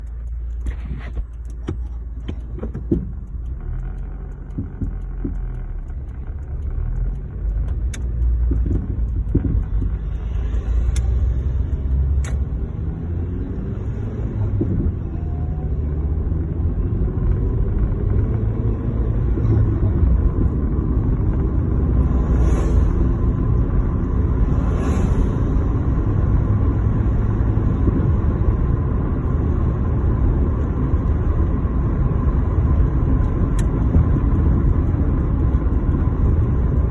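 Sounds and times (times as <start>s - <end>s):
car driving with low rumble: 0.0s - 36.9s.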